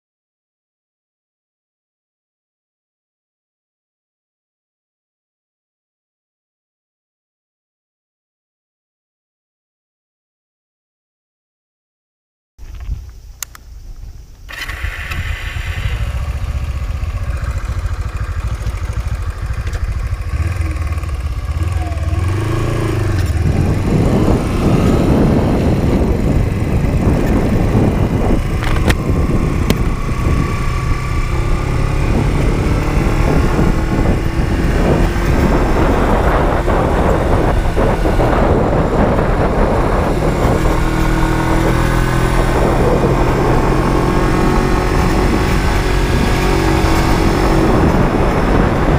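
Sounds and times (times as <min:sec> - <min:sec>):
wind and road noise: 0:12.6 - 0:48.9
motorcycle engine accelerating: 0:14.5 - 0:48.9.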